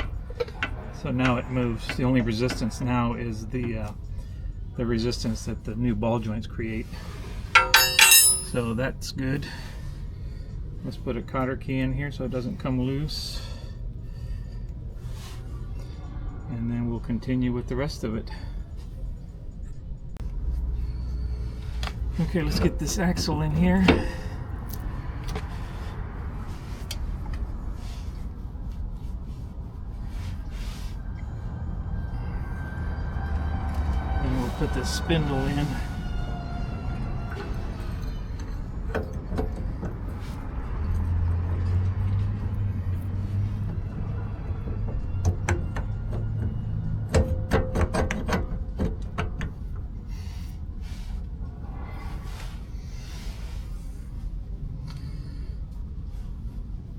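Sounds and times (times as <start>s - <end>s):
axle shaft scraping: 7.6s - 8.6s
metal parts clanking: 7.6s - 8.6s.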